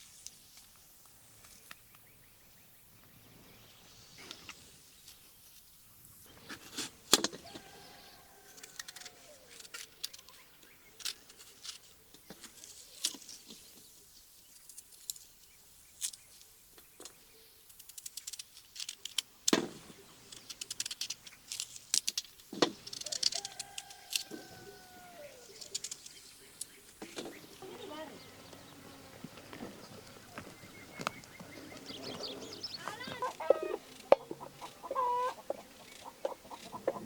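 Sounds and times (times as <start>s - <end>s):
objects clicking and knocking: 17.0s - 24.3s, 25.5s - 26.2s
drawn-out animal calls: 27.4s - 37.0s.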